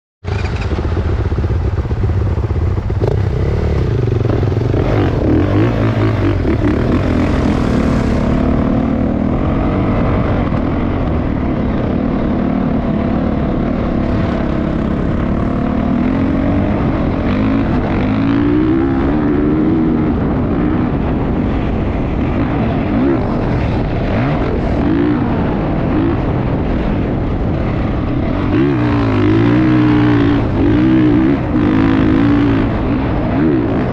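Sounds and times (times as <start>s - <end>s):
motocross bike engine revving: 2.2s - 10.9s, 11.6s - 21.6s, 27.4s - 33.9s.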